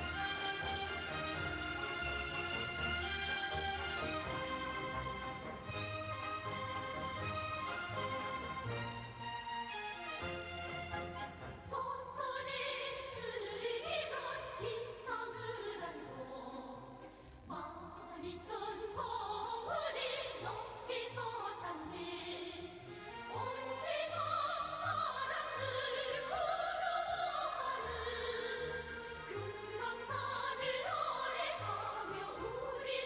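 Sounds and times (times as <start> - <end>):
orchestral accompaniment: 0.0 - 12.0, 28.0 - 32.9
operatic singing with vibrato: 0.0 - 33.0.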